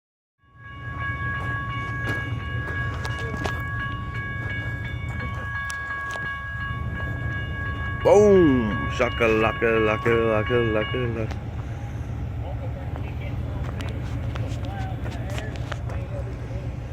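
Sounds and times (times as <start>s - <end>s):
high-pitched steady tone: 0.4s - 12.2s
train rumbling past: 0.4s - 16.9s
wheels clicking on rails: 1.2s - 16.9s.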